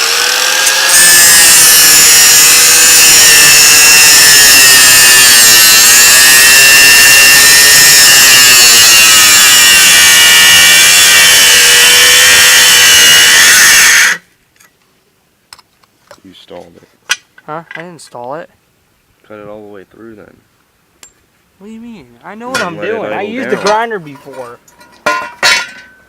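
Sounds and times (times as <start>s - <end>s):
angle grinder cutting metal: 0.0s - 14.2s.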